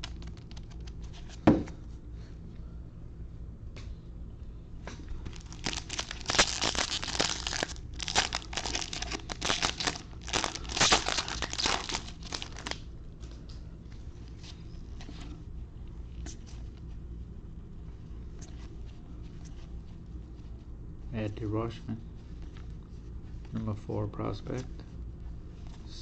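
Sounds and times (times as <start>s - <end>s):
card pack wrapper crinkling: 0.0s - 1.1s, 5.2s - 12.8s.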